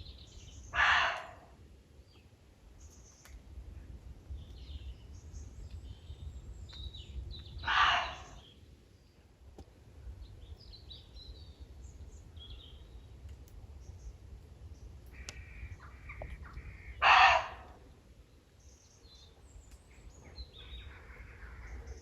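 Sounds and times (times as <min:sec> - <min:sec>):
small birds calling faintly: 0:00.0 - 0:22.0
deer barking: 0:00.8 - 0:01.4, 0:07.6 - 0:08.4, 0:17.0 - 0:17.7.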